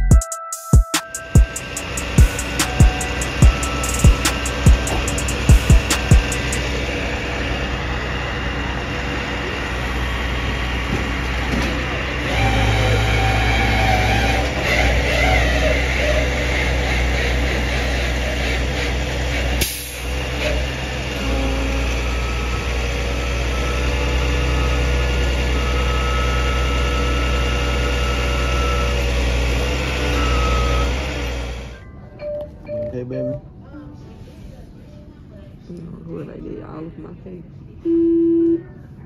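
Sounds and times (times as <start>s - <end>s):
vehicle engine running: 1.2s - 31.8s.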